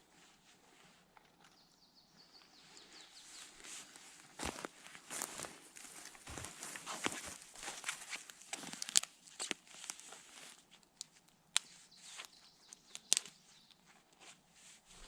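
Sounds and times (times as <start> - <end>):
dry twigs and leaves rustling: 2.7 - 15.0
twigs snapping: 5.1 - 13.8.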